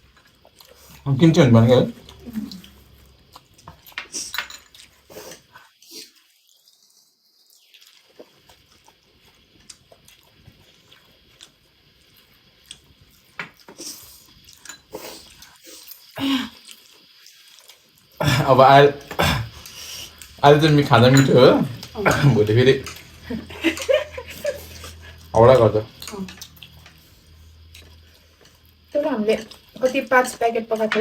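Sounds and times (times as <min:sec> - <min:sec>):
people chewing: 0:00.0 - 0:31.0
utensils clicking on bowls: 0:19.1 - 0:27.0, 0:29.3 - 0:31.0.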